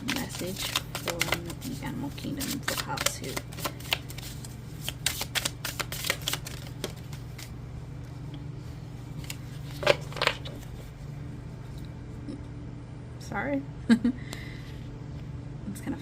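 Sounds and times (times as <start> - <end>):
cards being shuffled: 0.0 - 7.6, 9.1 - 11.0
low steady hum: 0.0 - 16.0.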